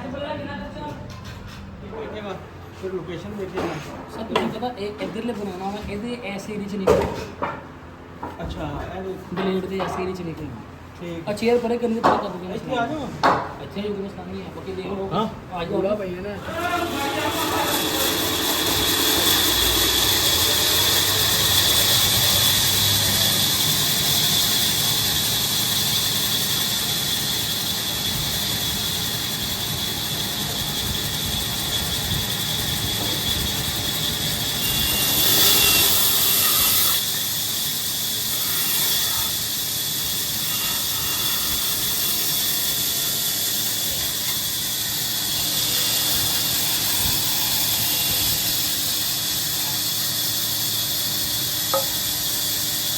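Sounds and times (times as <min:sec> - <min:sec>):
power saw whining: 0:16.4 - 0:52.9.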